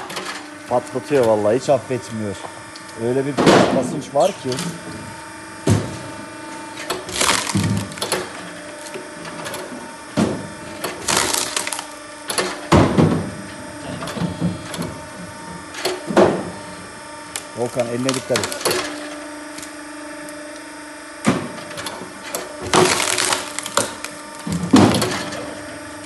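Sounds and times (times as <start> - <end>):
hydraulic log splitter humming: 0.0 - 26.0
wood splitting cracks: 6.8 - 9.0, 10.3 - 13.1, 17.3 - 20.4, 22.3 - 25.4.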